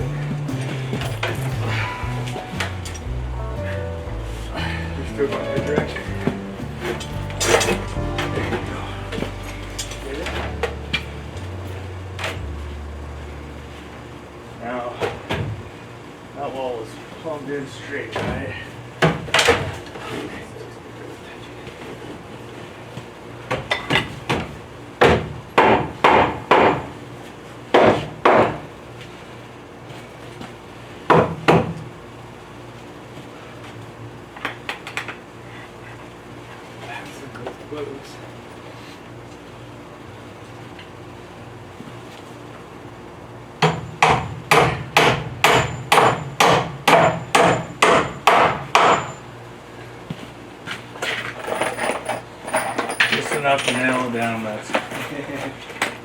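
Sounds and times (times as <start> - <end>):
steady low hum: 0.0 - 16.4
hammer striking nail into wood: 43.6 - 49.1.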